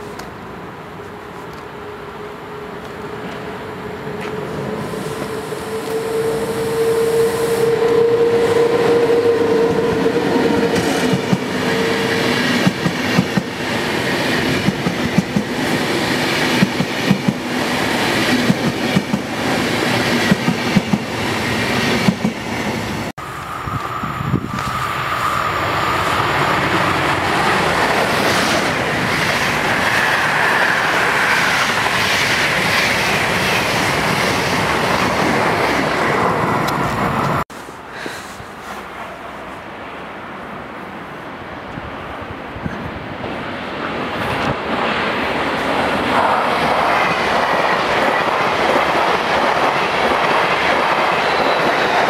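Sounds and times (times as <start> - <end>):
electric locomotive whine: 0.0 - 37.4, 41.7 - 52.0
passing train rumble: 0.0 - 52.0
high squeal: 4.7 - 11.0.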